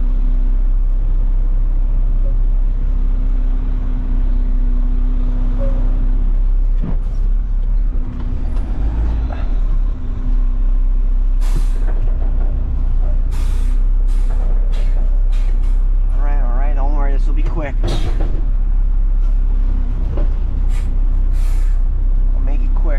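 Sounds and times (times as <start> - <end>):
truck diesel engine running: 0.0 - 22.9
air brake hissing: 11.4 - 11.9, 13.3 - 15.9, 20.6 - 21.9.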